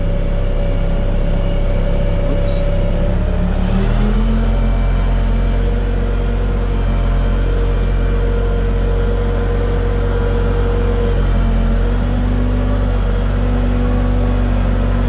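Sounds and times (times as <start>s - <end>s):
diesel engine running steadily: 0.0s - 15.0s.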